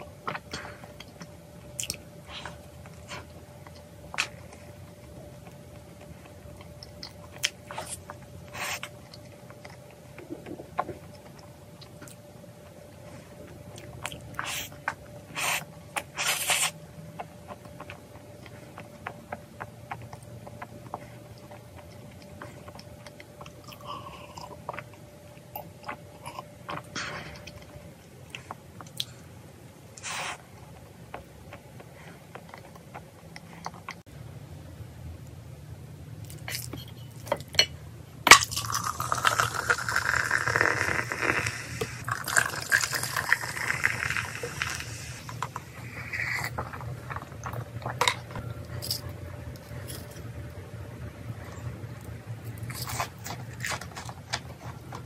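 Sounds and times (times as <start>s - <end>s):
chewing: 0.2s - 29.2s, 30.0s - 34.0s, 38.6s - 50.6s, 51.4s - 55.0s
crunchy cookie bites: 38.3s - 50.6s.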